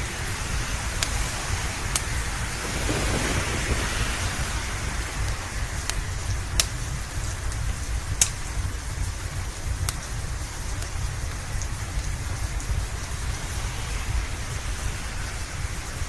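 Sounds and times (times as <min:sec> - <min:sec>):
steady rain: 0:00.0 - 0:16.0
wood fire crackling: 0:00.9 - 0:16.0
low rumble: 0:02.6 - 0:08.1.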